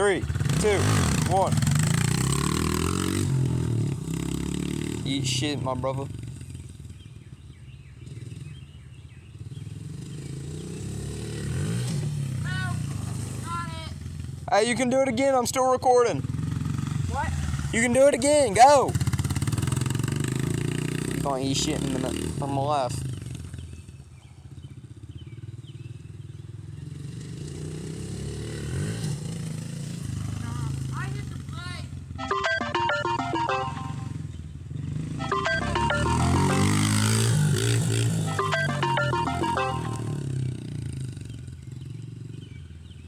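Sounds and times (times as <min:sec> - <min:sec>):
dirt bike engine revving: 0:00.2 - 0:05.1.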